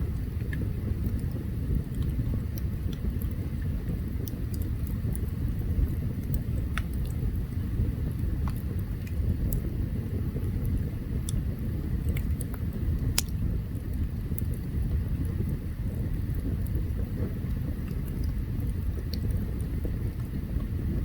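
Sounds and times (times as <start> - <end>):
campfire burning: 0.0 - 21.0
wood crackling and popping: 0.0 - 21.0.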